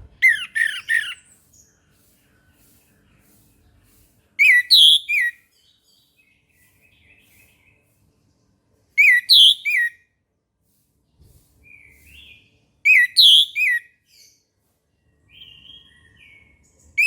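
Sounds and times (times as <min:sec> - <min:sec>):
thrush whistled song: 0:04.4 - 0:05.5, 0:09.0 - 0:10.0, 0:11.7 - 0:14.0.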